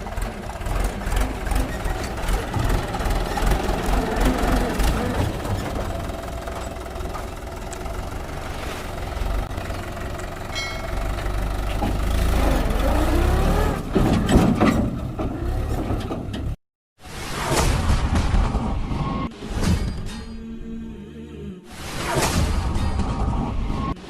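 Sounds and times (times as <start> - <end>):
tractor diesel engine revving: 0.0 - 16.6.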